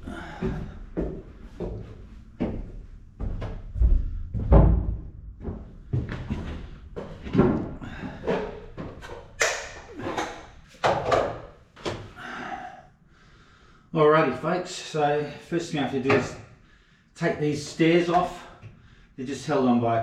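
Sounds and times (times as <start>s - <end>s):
thuds and knocks: 3.2s - 8.2s.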